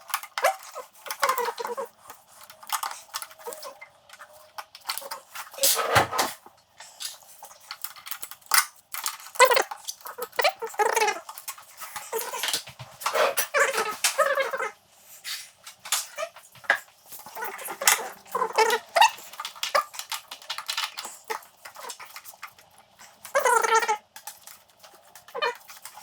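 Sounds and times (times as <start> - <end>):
dog whining: 0.4 - 4.0, 9.4 - 11.3, 17.2 - 19.9, 23.0 - 24.0, 25.2 - 25.7.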